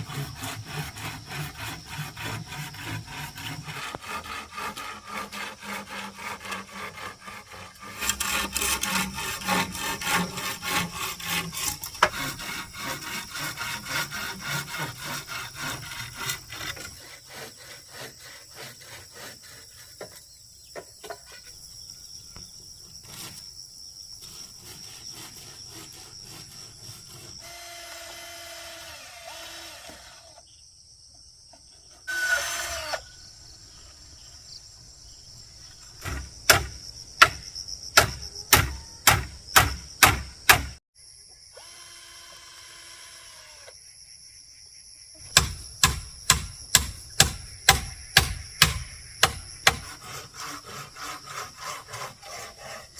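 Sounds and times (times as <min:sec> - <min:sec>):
hand saw cutting wood: 0:00.0 - 0:20.2, 0:23.0 - 0:23.4, 0:24.2 - 0:30.4, 0:31.9 - 0:33.0, 0:45.3 - 0:52.9.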